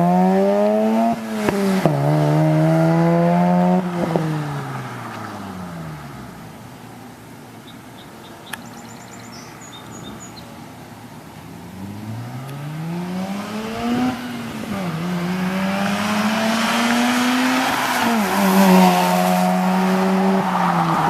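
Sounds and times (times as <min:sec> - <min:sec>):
rotary engine accelerating: 0:00.0 - 0:06.6, 0:11.6 - 0:21.0.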